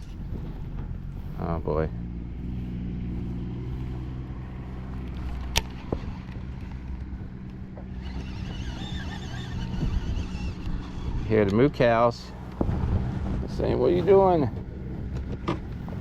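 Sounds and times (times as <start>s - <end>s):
engine humming: 0.0s - 16.0s
sharp click: 5.4s - 6.1s.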